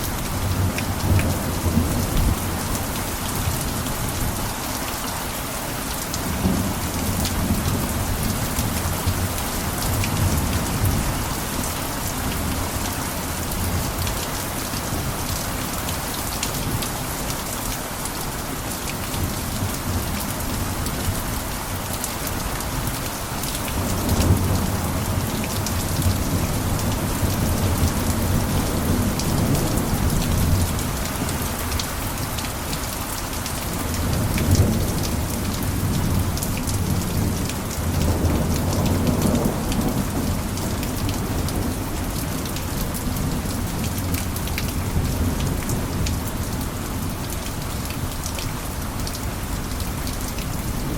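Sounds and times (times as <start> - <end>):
heavy rain on a roof: 0.0 - 50.9.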